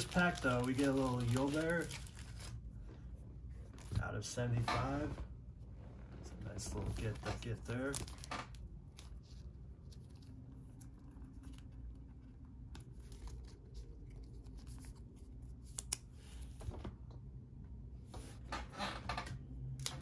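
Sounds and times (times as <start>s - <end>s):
cards and packaging rustling: 0.0s - 2.8s, 6.5s - 16.8s.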